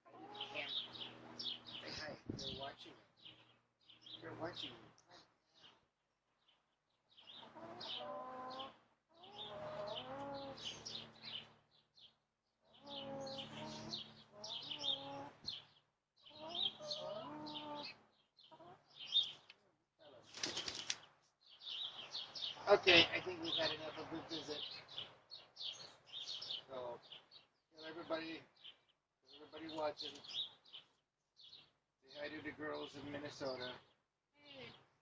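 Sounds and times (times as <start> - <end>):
hens calling: 0.1 - 2.0, 7.3 - 11.1, 12.7 - 19.3
hen flapping wings: 20.2 - 21.1.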